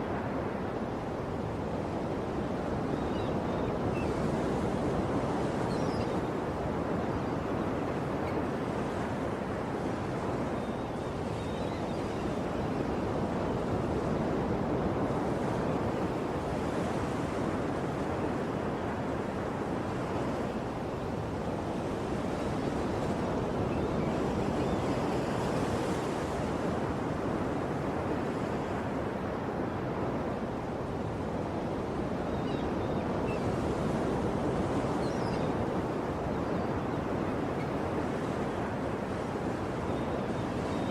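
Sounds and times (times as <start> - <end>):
waves breaking on shore: 0.0 - 40.9.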